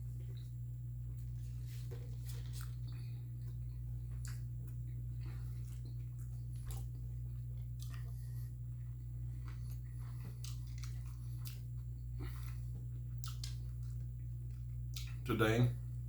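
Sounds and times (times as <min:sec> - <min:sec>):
person chewing food: 0:00.0 - 0:15.2
steady low hum: 0:00.0 - 0:16.0
mouth clicks and smacks: 0:13.1 - 0:14.0, 0:14.9 - 0:15.2.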